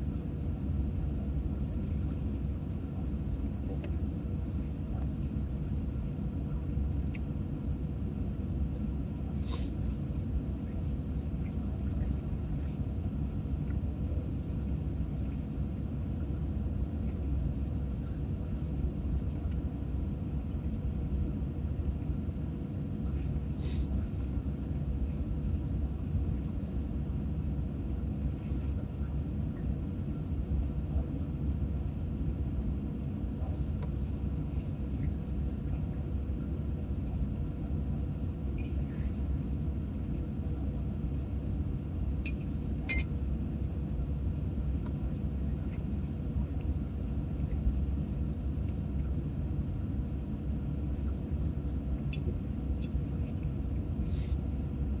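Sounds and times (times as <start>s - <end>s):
faint steady hum: 0.0s - 55.0s
steady low rumble: 0.0s - 55.0s
brief high hiss: 9.4s - 9.7s.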